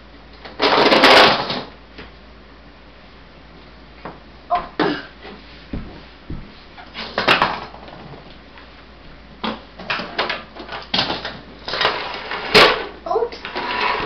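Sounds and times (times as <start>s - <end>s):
toy trucks clattering: 9.9s - 14.0s.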